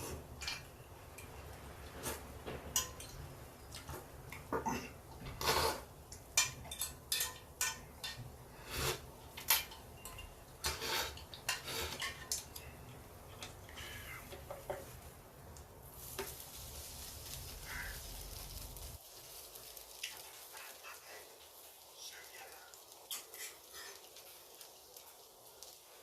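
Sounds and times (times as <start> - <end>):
faint hiss: 0.0 - 26.0
cutlery clinking on a plate: 6.4 - 8.2, 9.4 - 12.6.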